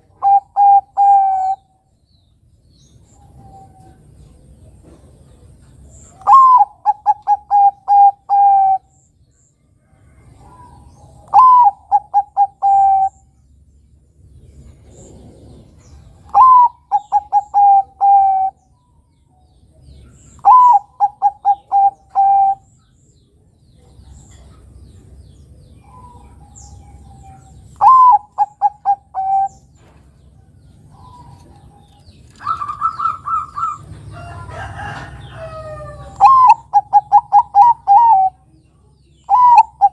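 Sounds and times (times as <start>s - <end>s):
dove cooing: 0.0s - 1.7s, 6.1s - 9.0s, 10.4s - 13.3s, 14.8s - 18.6s, 20.3s - 22.7s, 25.8s - 29.8s, 30.8s - 38.5s, 39.2s - 39.9s
bird chirps: 0.0s - 39.9s.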